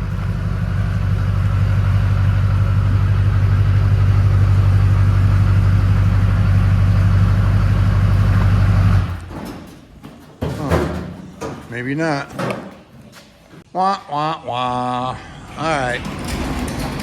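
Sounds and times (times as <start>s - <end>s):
truck engine droning: 0.0s - 9.6s.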